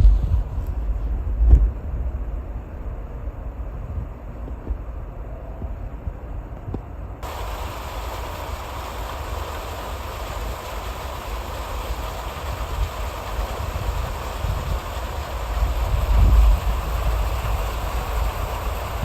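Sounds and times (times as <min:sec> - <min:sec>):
wind rumbling on microphone: 0:00.0 - 0:19.0
hiss of falling precipitation: 0:07.2 - 0:19.0.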